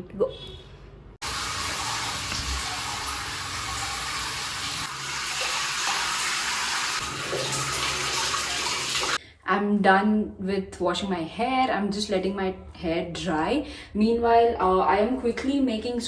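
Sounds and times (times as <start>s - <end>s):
shower water spraying: 1.2s - 9.2s.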